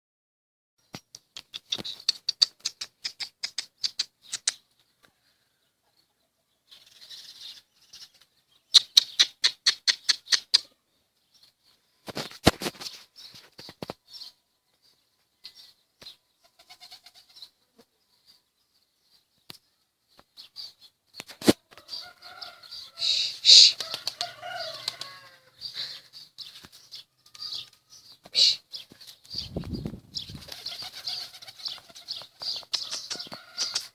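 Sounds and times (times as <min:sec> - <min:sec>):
bird calls: 0:19.4 - 0:33.9
pigeon wings flapping: 0:23.7 - 0:25.1, 0:29.2 - 0:33.8.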